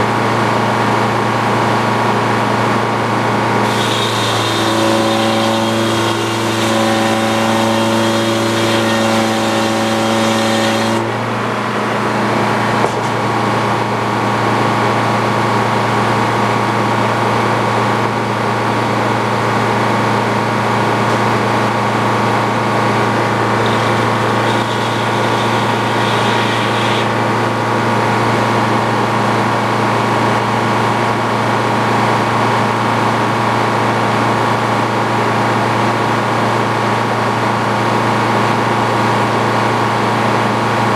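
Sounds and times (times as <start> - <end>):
sawmill engine hum: 0.0 - 40.9
saw whine: 3.4 - 13.4, 21.1 - 28.4.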